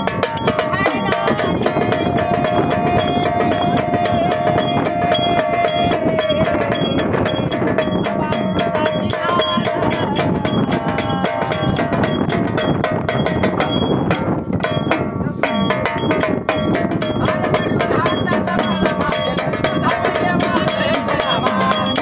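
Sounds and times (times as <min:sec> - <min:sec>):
jingling metal percussion: 0:00.0 - 0:22.0.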